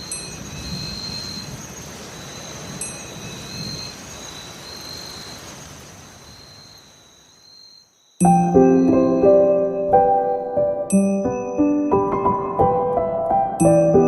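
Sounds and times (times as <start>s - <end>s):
rain-like ambient noise: 0.0s - 14.0s
musical notes: 8.2s - 14.0s.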